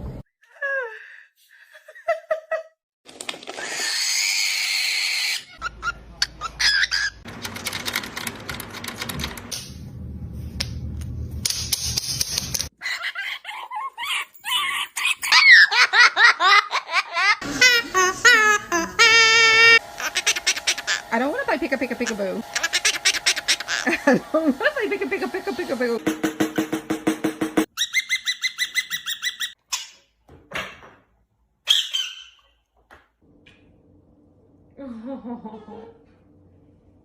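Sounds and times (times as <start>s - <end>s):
parrot calling: 12.8s - 15.8s, 17.4s - 21.2s, 22.0s - 24.0s, 27.7s - 29.9s, 31.7s - 32.6s.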